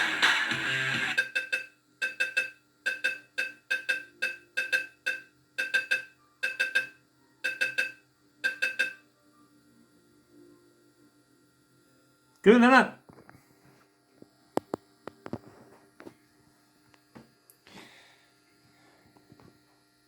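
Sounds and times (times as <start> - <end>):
fruit machine music: 0.0 - 9.2.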